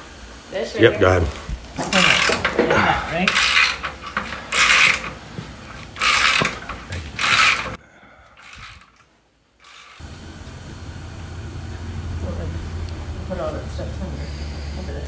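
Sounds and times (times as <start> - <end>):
ratchet wrench clicking: 1.8 - 7.8, 8.4 - 9.0, 9.6 - 10.0
low steady hum: 10.0 - 15.0.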